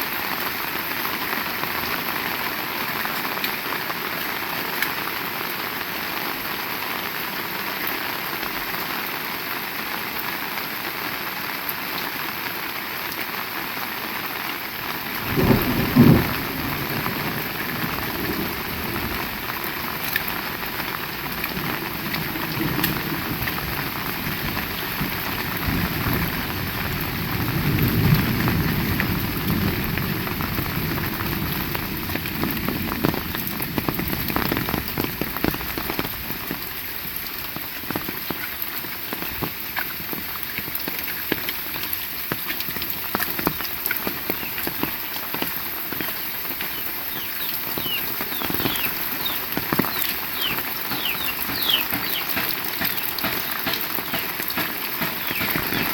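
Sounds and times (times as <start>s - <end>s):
heavy rain: 0.0s - 55.9s
thunder crack: 15.2s - 19.4s
low rolling thunder: 15.2s - 20.0s, 21.1s - 35.7s.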